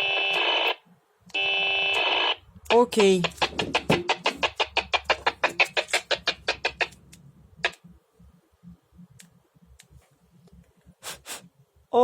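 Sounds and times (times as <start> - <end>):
two-way radio clicking: 1.3 - 7.8.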